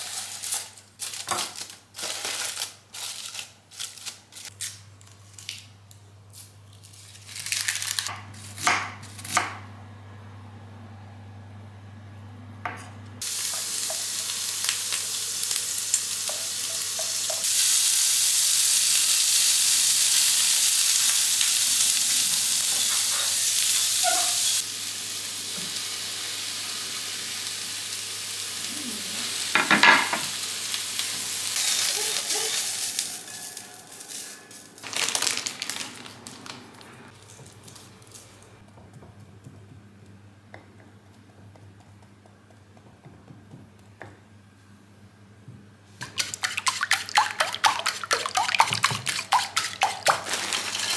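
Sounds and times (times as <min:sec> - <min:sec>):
food sizzling in a pan: 0:13.2 - 0:34.9, 0:49.3 - 0:50.9
utensils clattering: 0:31.6 - 0:38.3, 0:46.0 - 0:50.9.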